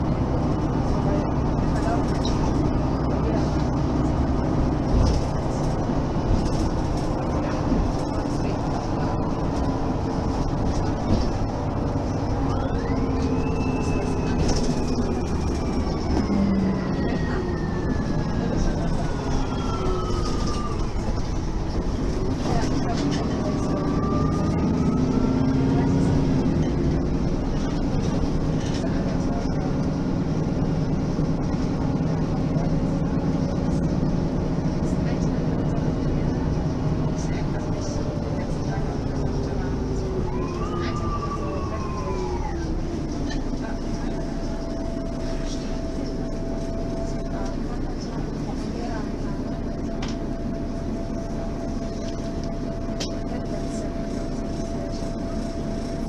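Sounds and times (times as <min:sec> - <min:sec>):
bus engine rumbling: 0:00.0 - 0:56.0.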